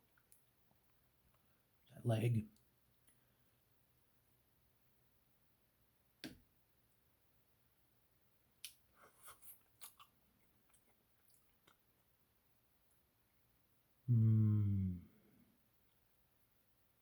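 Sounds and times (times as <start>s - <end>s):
eating clicks and mouth smacks: 8.6s - 11.9s.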